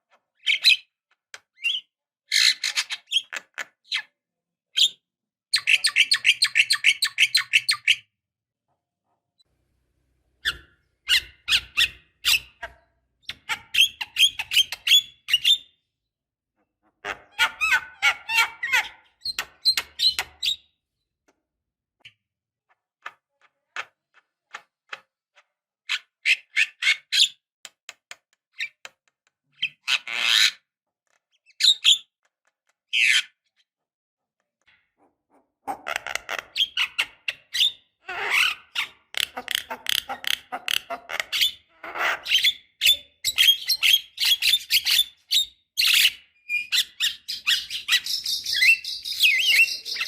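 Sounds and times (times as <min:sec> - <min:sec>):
harsh bird calls: 0:37.6 - 0:50.0
bird chattering song: 0:42.3 - 0:50.0.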